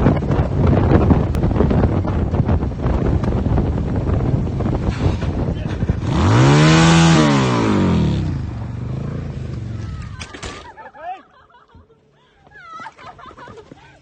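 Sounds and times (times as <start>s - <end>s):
wind buffeting microphone: 0.0s - 10.2s
vehicle engine revving: 1.1s - 10.2s.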